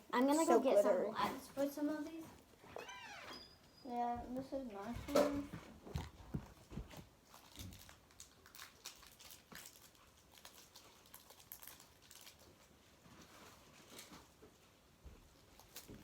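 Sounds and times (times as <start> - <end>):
plastic bags crinkling: 7.2 - 12.8.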